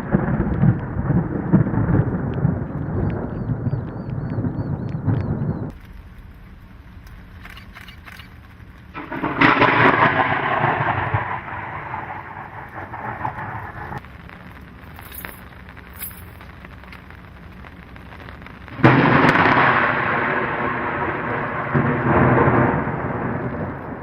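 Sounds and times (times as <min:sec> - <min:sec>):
light rain: 0:00.0 - 0:24.0
thunderclap rumbling: 0:00.0 - 0:24.0.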